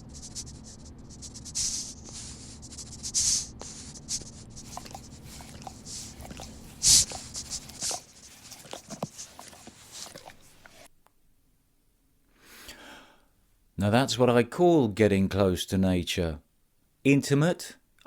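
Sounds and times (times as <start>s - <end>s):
animal breathing and sniffing: 0.0s - 10.9s
rubbing and scuffing: 0.0s - 10.9s.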